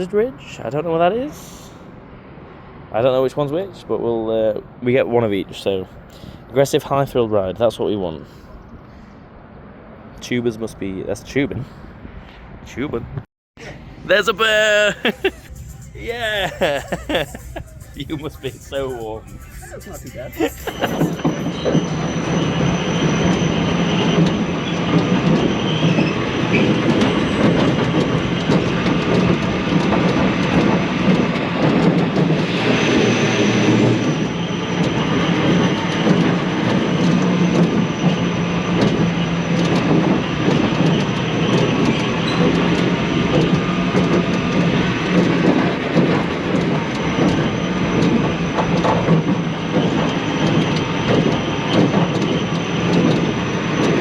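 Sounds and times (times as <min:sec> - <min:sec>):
coaster wheels rumbling on metal track: 0:17.5 - 0:54.0.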